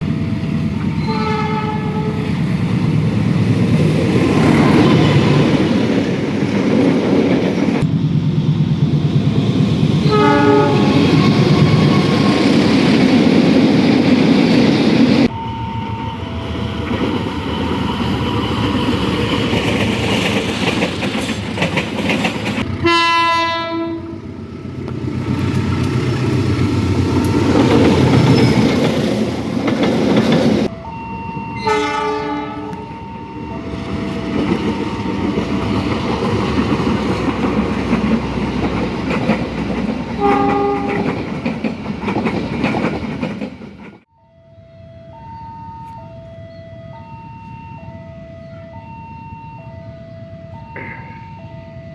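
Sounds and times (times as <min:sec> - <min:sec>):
train horn: 0:00.8 - 0:02.4, 0:04.5 - 0:05.4, 0:10.0 - 0:12.6, 0:22.7 - 0:24.2, 0:30.7 - 0:34.8, 0:40.2 - 0:41.2
train wheels clattering: 0:16.9 - 0:23.2, 0:24.8 - 0:30.7, 0:33.9 - 0:44.1.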